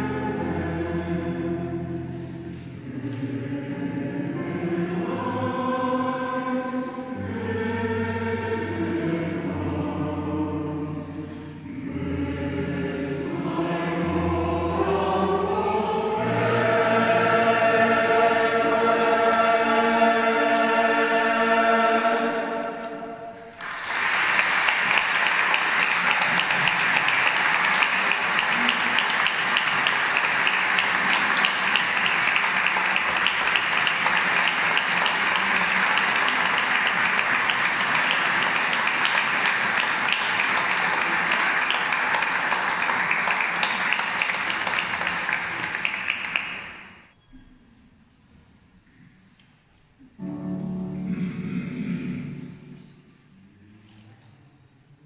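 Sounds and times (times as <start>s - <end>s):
choir singing: 0.0s - 46.9s
audience applause: 23.5s - 47.0s.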